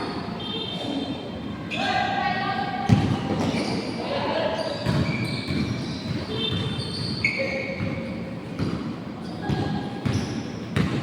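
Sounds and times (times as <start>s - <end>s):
basketball bouncing on court: 2.9s - 3.5s, 4.8s - 7.2s, 7.8s - 11.0s
shoe squeaks: 3.4s - 8.1s, 9.2s - 10.8s.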